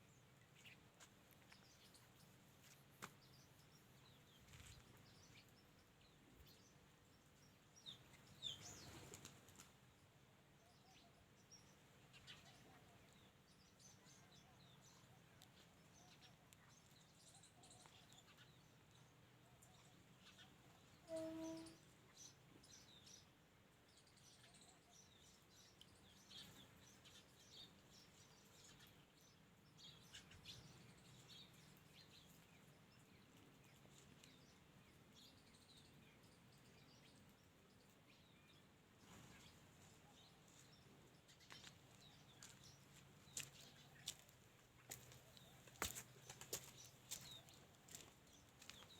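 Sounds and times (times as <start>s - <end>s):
small birds chirping: 0.0s - 48.9s
low pitched bird call: 21.0s - 21.8s.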